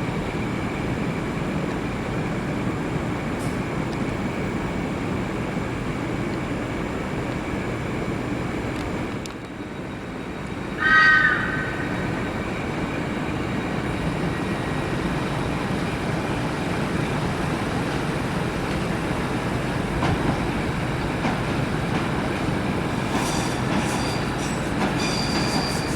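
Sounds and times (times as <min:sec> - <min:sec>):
rumble of trains: 0:00.0 - 0:25.9
train horn blast: 0:10.8 - 0:12.1.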